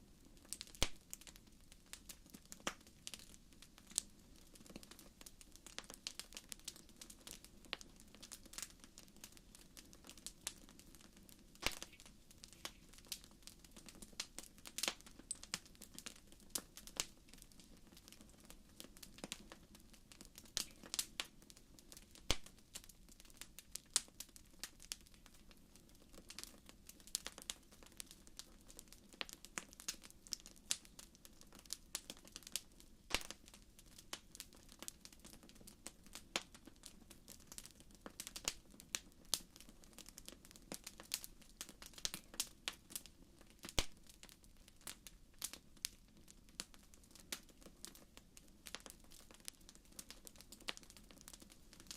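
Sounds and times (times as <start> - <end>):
wood fire crackling: 0.0 - 51.9
low hiss: 9.0 - 15.7.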